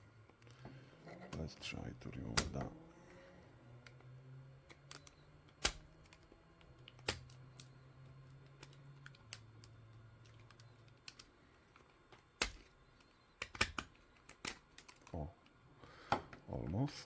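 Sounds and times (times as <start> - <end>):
plastic snapping and cracking: 2.2 - 2.7, 4.6 - 15.6.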